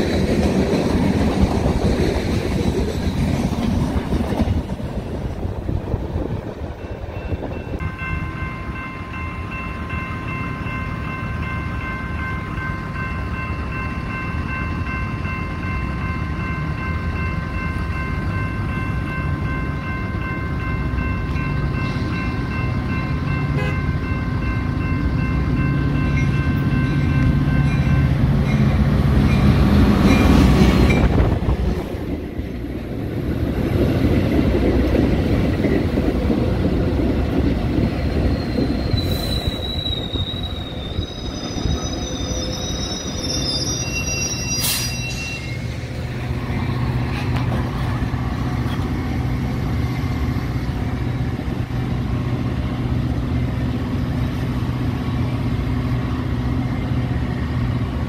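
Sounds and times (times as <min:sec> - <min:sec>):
train rumbling past: 0:00.0 - 0:58.0
high-pitched wheel squeal: 0:38.0 - 0:45.8.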